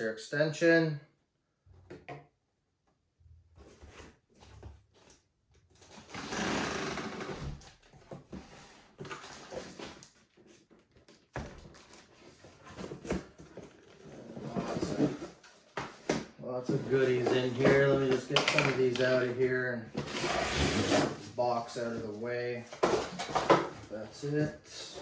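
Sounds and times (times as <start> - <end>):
cardboard packaging rustling: 7.1 - 25.0.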